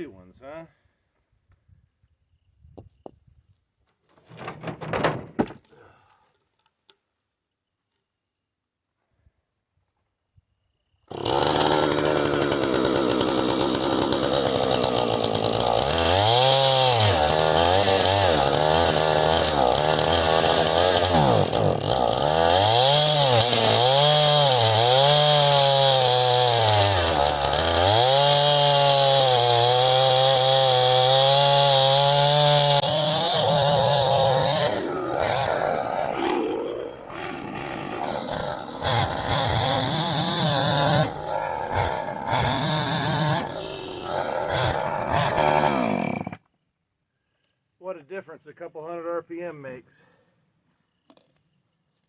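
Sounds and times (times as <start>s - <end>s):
chainsaw cutting wood: 11.1s - 46.5s.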